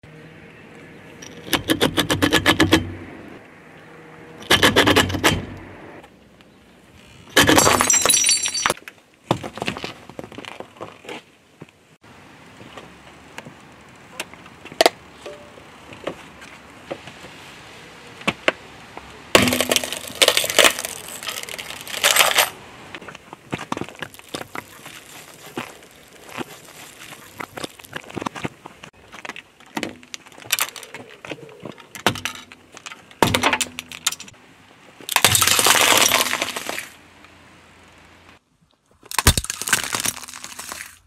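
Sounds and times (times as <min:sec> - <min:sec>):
plastic and wood crunching: 0:07.2 - 0:08.1, 0:19.4 - 0:34.4, 0:35.0 - 0:37.0, 0:38.8 - 0:41.0
plastic bottles popping: 0:19.4 - 0:22.3, 0:39.1 - 0:41.0
plastic clock crunching: 0:19.4 - 0:22.6, 0:39.0 - 0:41.0.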